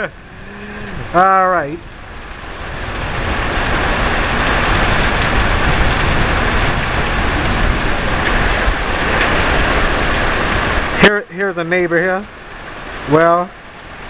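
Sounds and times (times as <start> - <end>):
low rumble: 0.0 - 10.9
steady rain hiss: 0.0 - 14.0.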